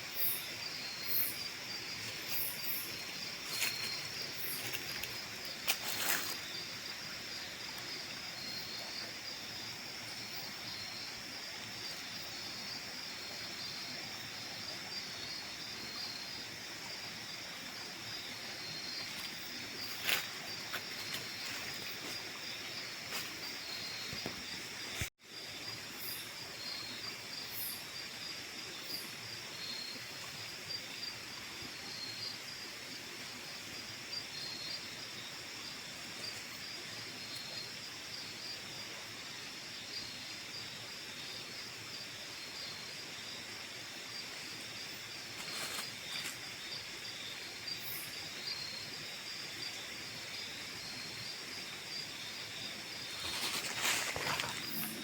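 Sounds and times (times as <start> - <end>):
crickets and night insects trilling: 0.0 - 55.0
faint rustles: 45.4 - 46.4, 53.1 - 55.0.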